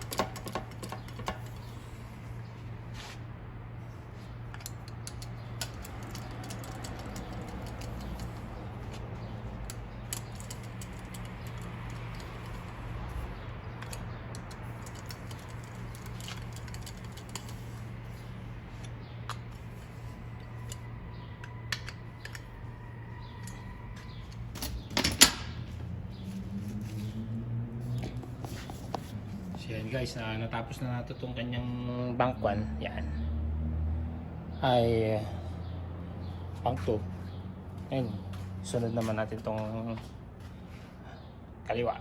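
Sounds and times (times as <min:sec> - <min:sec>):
steady background hum: 0:00.0 - 0:31.6
metallic clicks and taps: 0:04.5 - 0:08.6.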